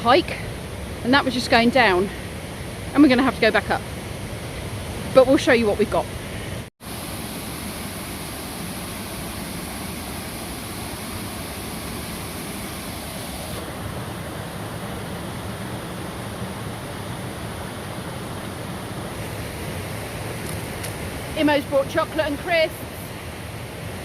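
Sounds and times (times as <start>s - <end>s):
waterfall rushing: 6.8s - 24.0s.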